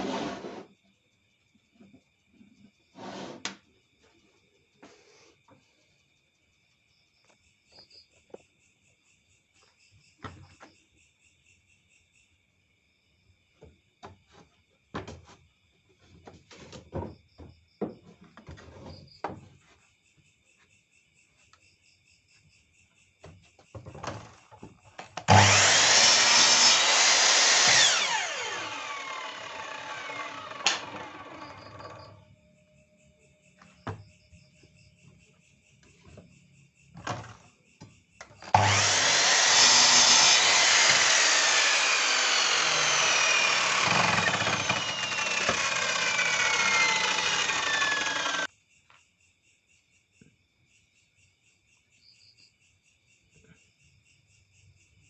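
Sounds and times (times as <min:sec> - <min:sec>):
insects chirping: 0:00.0 - 0:55.0
knocks of handling wood and tools: 0:13.6 - 0:19.8, 0:23.2 - 0:25.5
wood router running: 0:25.3 - 0:32.1, 0:38.5 - 0:48.5.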